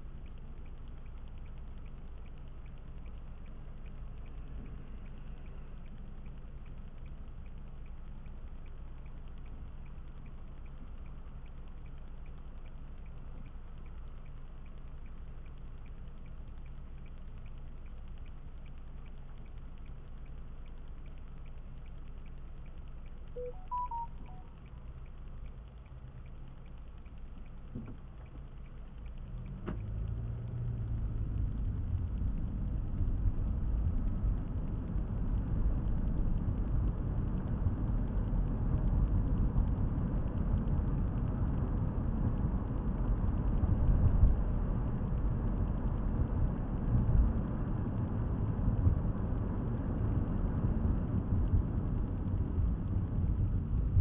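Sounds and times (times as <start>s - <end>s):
car road and engine rumble: 0.0s - 54.0s
faint short tones: 23.4s - 24.5s.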